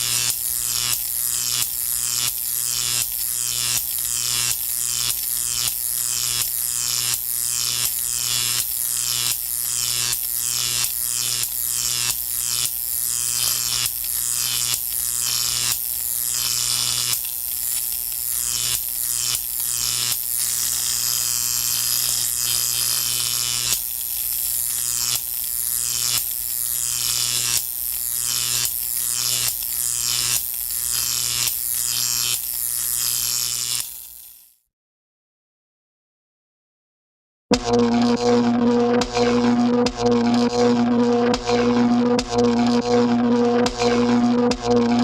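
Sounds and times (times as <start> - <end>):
small motor buzzing in pulses: 0.0 - 34.6, 37.6 - 45.0
steady low hum: 37.6 - 45.0.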